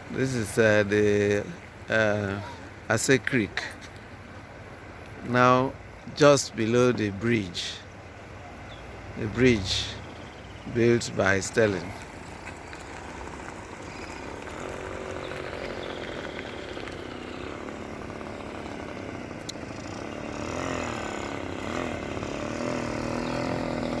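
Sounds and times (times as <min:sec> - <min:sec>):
small engine revving: 0:08.6 - 0:24.0.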